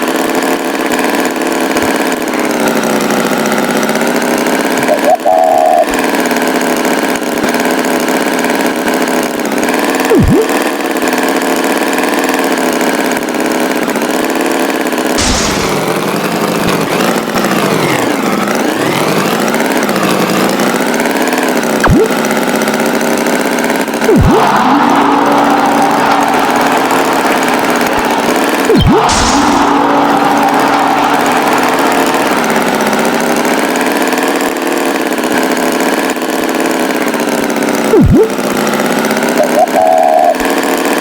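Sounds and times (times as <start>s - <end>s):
tractor engine revving: 0.0s - 41.0s
sharp pitch sweeps: 24.1s - 33.5s.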